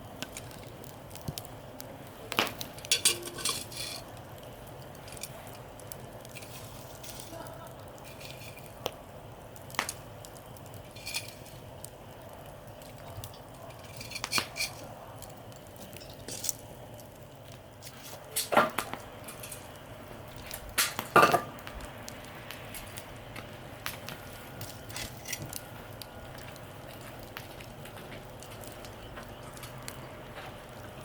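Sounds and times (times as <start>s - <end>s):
metal cookware clanking: 2.8s - 4.0s.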